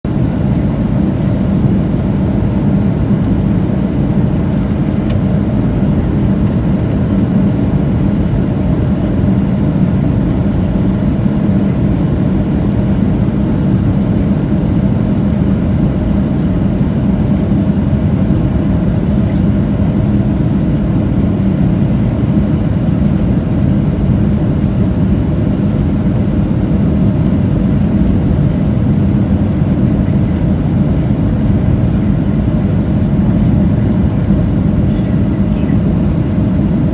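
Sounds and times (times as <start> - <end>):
airplane cabin engine drone: 0.0 - 36.9
faint steady hum: 0.1 - 36.9.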